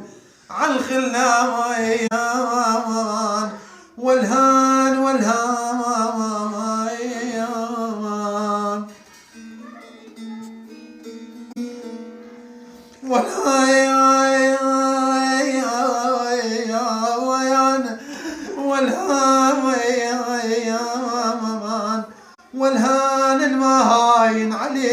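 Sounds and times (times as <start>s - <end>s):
plucked-string playing: 9.3s - 13.5s
person singing ornamented notes: 13.0s - 24.9s.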